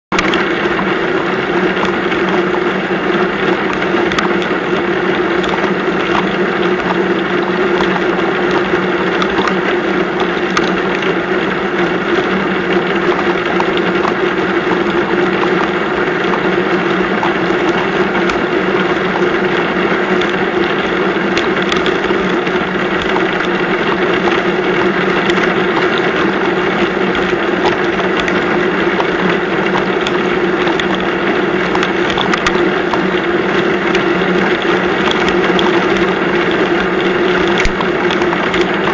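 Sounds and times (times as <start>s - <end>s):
heavy rain pouring: 0.1s - 38.9s
raindrops ticking close by: 0.1s - 38.9s.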